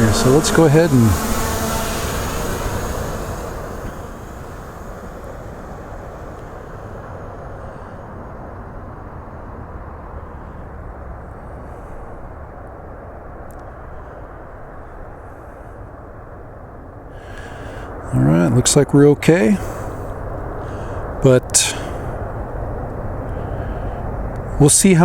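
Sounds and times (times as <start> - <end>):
drone propeller buzz: 0.0 - 10.7, 17.2 - 24.7
steady low rushing noise: 0.0 - 25.0.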